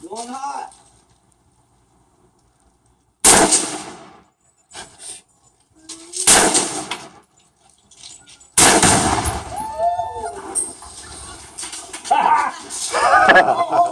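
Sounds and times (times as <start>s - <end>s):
gunshot: 3.2s - 4.2s, 6.3s - 7.2s, 8.6s - 9.6s
loud explosion blast: 8.6s - 9.6s
voices calling out: 9.3s - 13.9s.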